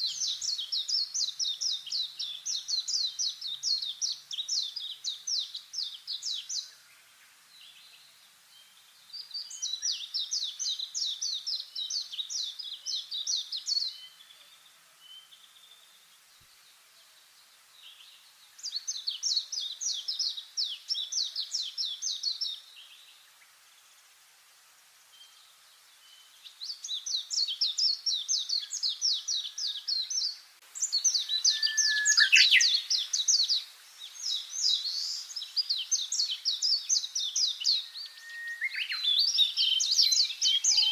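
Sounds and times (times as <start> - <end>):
songbird trilling: 26.8 - 33.6, 34.2 - 40.9.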